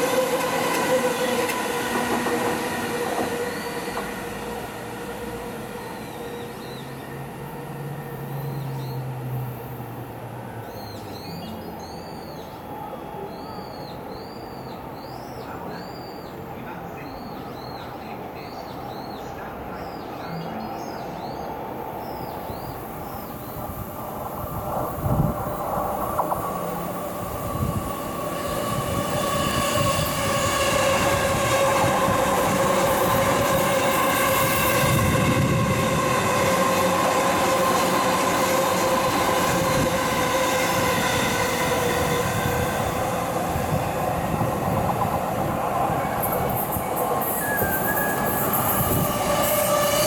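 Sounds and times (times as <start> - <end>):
train clunks: 0.0 - 4.5
train rumble: 0.0 - 10.6, 21.0 - 50.0
falling train whine: 0.0 - 10.7, 20.6 - 50.0.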